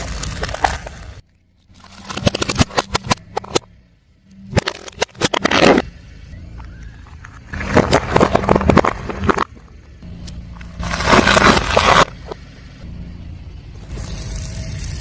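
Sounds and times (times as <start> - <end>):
tyre crushing brittle objects: 0.0 - 3.6, 4.5 - 5.9, 7.2 - 9.8, 10.6 - 12.4
low rumble of slow car: 0.0 - 15.0.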